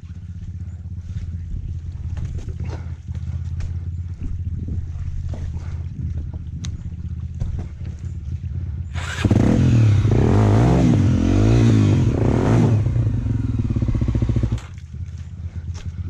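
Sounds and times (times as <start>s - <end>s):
motorcycle engine revving: 7.4s - 14.8s.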